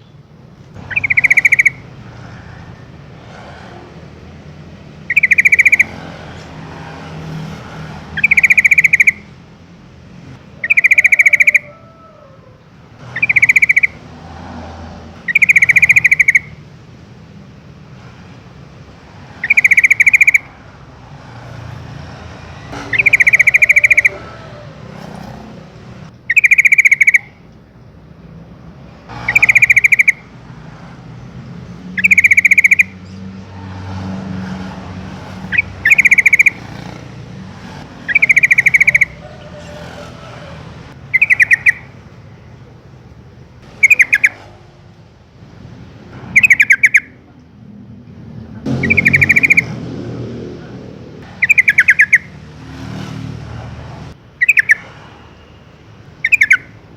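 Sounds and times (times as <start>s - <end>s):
bird chattering call: 0.8s - 2.0s, 5.0s - 6.2s, 8.1s - 9.4s, 10.6s - 14.0s, 15.2s - 16.6s, 19.4s - 20.6s, 22.6s - 27.4s, 29.1s - 30.3s, 32.0s - 33.2s, 35.3s - 42.5s, 43.6s - 44.6s, 46.3s - 47.3s, 48.7s - 49.8s, 51.2s - 52.4s, 54.3s - 55.5s, 56.2s - 56.8s.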